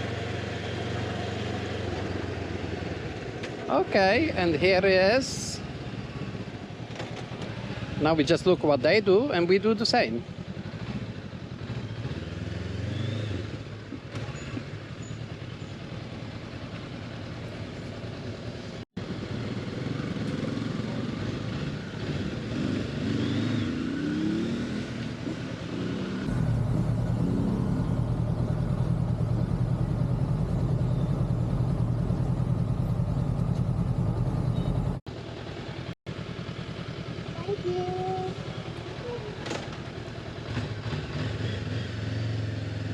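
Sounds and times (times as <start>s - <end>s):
motorcycle engine running: 0.0s - 42.9s
traffic: 0.0s - 42.9s
voices: 3.6s - 5.8s, 8.0s - 10.3s, 37.3s - 40.0s
low engine drone: 26.2s - 37.0s.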